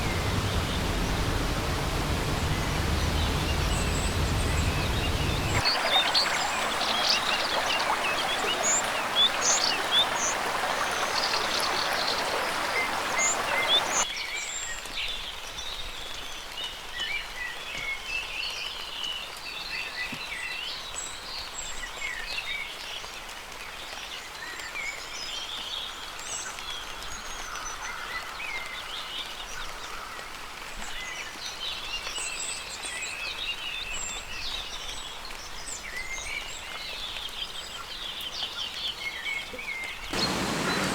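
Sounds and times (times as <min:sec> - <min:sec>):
dense steady hiss: 0:00.0 - 0:05.8, 0:40.2 - 0:40.9.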